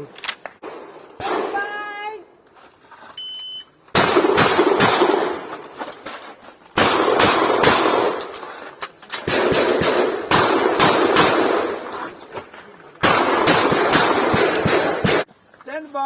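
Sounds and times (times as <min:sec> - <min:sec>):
shotgun shots: 0:00.2 - 0:01.8, 0:04.0 - 0:05.6, 0:06.8 - 0:08.4, 0:09.2 - 0:11.9, 0:13.0 - 0:15.3
electronic timer beep: 0:03.2 - 0:03.7.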